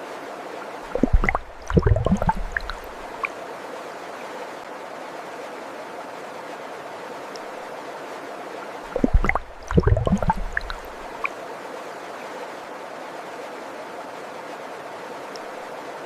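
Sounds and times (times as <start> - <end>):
stream water flowing: 0.0 - 16.0
water gurgling and splashing: 0.9 - 3.3, 8.9 - 11.3.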